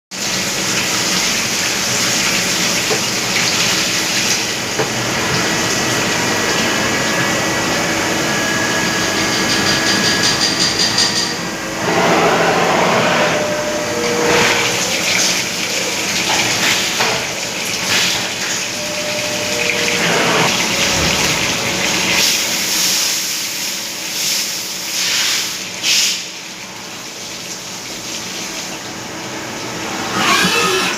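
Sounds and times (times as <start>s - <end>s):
machine cutting tones: 29.8s - 30.9s.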